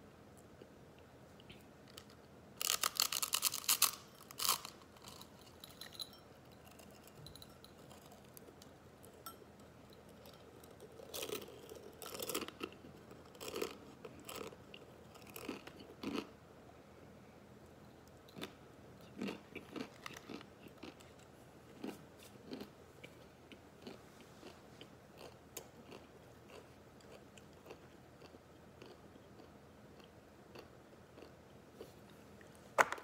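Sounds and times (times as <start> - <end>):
dry noodles cracking: 1.9 - 5.3
crunchy chewing: 10.1 - 16.3, 18.4 - 31.9.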